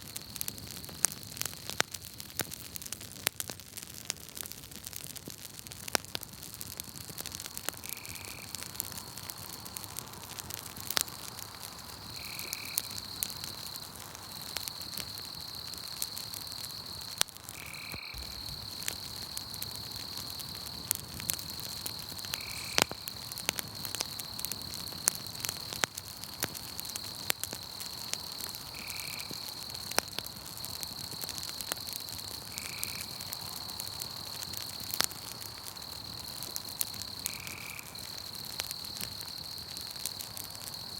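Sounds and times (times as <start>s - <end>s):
campfire crackling and popping: 0.0s - 40.9s
night insects trilling: 6.6s - 40.9s.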